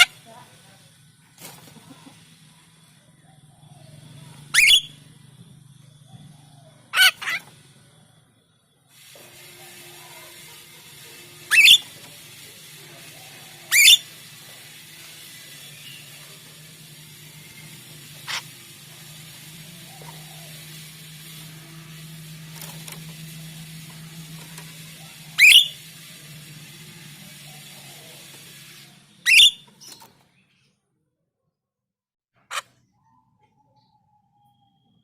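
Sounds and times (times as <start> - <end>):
bird whistled calls: 4.5 - 5.0, 11.5 - 11.9, 13.7 - 14.1, 25.4 - 25.8, 29.2 - 29.7.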